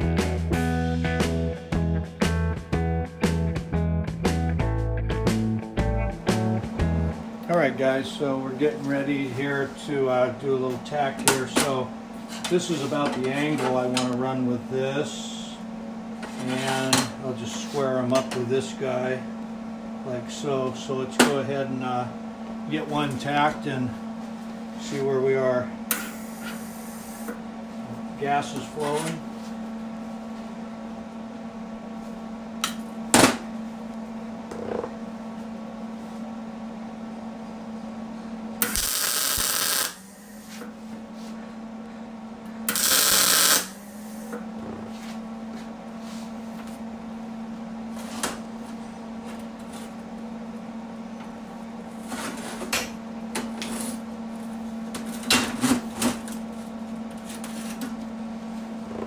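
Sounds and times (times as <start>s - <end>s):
steady hum: 0.0s - 10.0s, 38.2s - 41.8s
arc welder crackling: 25.9s - 27.3s, 38.6s - 40.7s, 42.7s - 44.4s.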